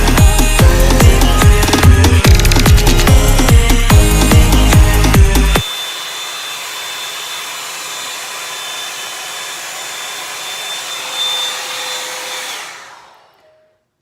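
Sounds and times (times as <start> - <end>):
electronic music with a beat: 0.0 - 5.6
hair dryer running: 0.0 - 13.8.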